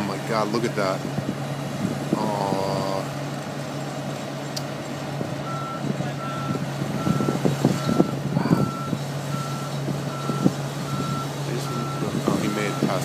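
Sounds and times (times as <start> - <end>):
crane engine running: 0.0 - 13.0
reversing alarm beeping: 5.4 - 13.0.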